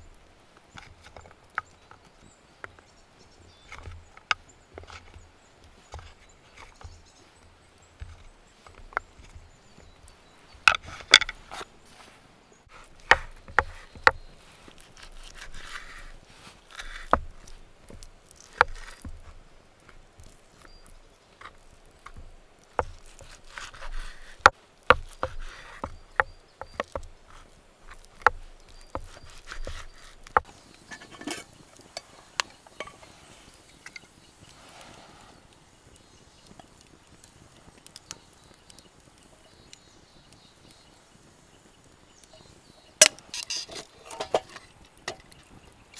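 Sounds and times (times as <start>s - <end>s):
rustling: 5.7s - 45.9s
cookware knocks and clinks: 30.6s - 34.1s, 43.0s - 45.4s
wood chopping knocks: 35.6s - 45.4s.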